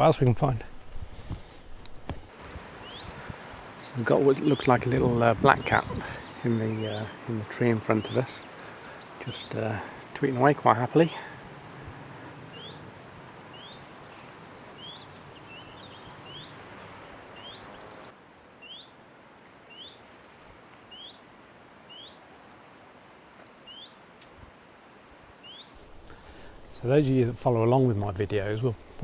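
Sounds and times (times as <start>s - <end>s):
faint steady hiss: 0.0s - 29.0s
songbird rising call: 2.4s - 20.1s, 20.8s - 22.8s, 23.6s - 24.6s, 25.4s - 25.8s.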